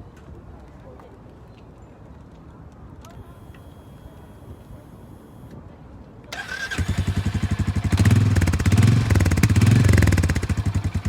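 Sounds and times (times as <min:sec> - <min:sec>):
motorcycle starter: 0:06.3 - 0:11.0
motorcycle engine running: 0:06.4 - 0:11.0.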